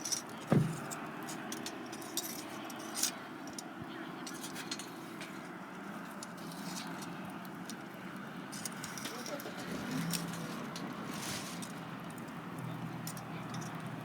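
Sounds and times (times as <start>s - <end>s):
firewood crackling: 5.7s - 14.0s.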